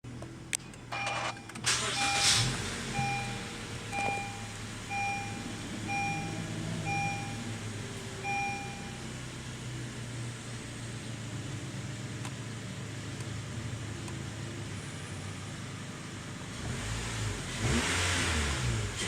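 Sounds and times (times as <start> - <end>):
car engine idling: 0.0 - 16.6
car warning chime beeping: 0.7 - 9.2.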